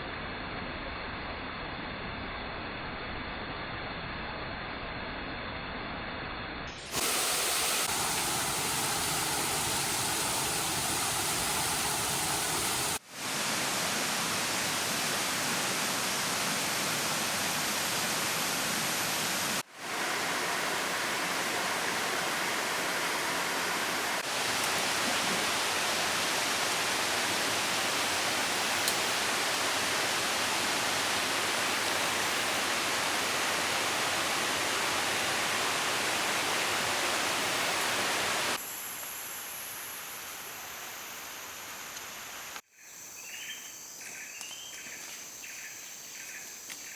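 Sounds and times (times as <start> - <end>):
waterfall roaring: 6.8 - 38.6.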